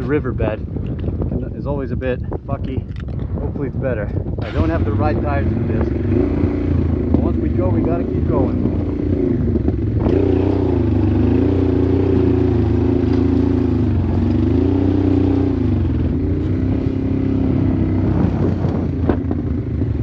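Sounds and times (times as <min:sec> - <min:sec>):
motorcycle engine under load: 0:04.2 - 0:20.0.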